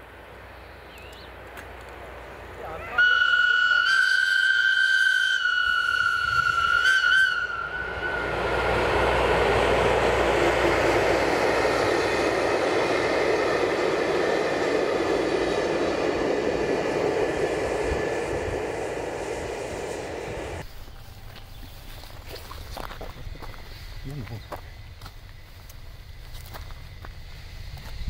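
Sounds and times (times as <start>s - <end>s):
train wheels rushing on rails: 0.0s - 28.0s
locomotive horn: 2.7s - 9.1s.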